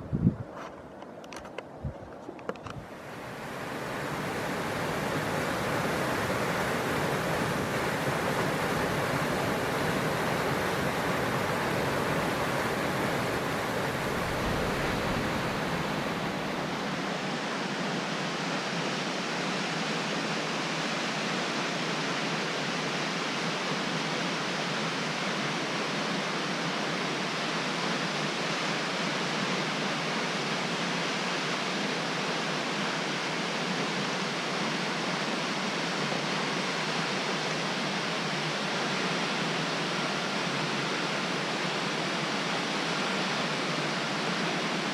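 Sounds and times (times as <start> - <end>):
waterfall rushing: 2.9 - 17.8.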